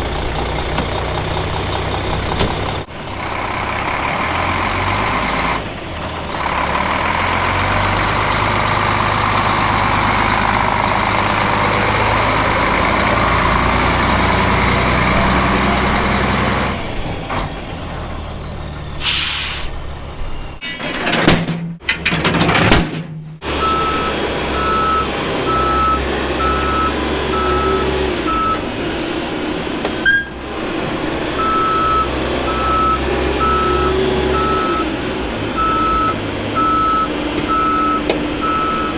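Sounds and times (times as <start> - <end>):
heavy vehicle engine running: 0.0 - 20.6, 23.2 - 38.9
backup alarm beeping: 23.6 - 28.6, 30.0 - 30.4, 31.4 - 34.9, 35.6 - 38.9.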